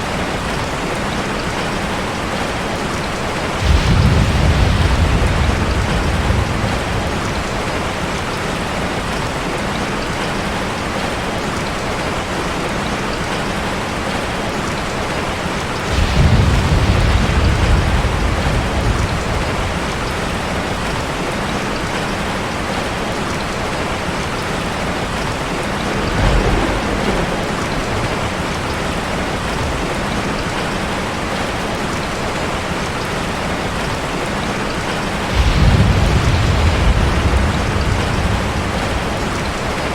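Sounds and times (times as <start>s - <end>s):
heavy rain drumming on a car: 0.0s - 39.9s
thunder rolling: 3.4s - 9.2s, 15.6s - 22.1s, 24.6s - 31.4s, 35.0s - 39.9s.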